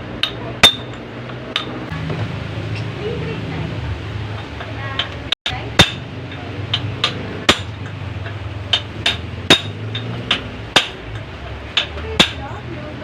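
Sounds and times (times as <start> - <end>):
hammer striking metal: 0.0 - 1.9, 4.4 - 12.5.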